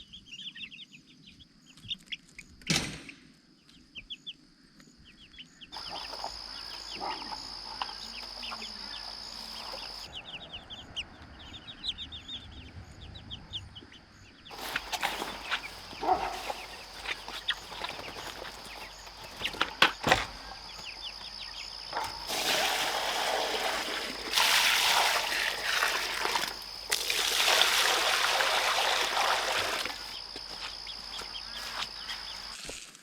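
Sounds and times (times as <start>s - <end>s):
water pouring into container: 22.0s - 30.4s.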